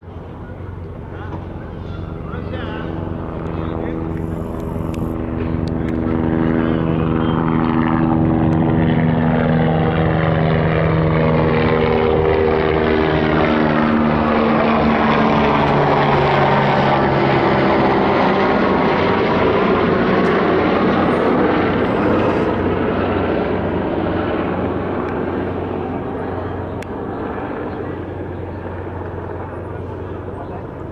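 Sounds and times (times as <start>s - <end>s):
helicopter running close by: 0.0s - 30.9s.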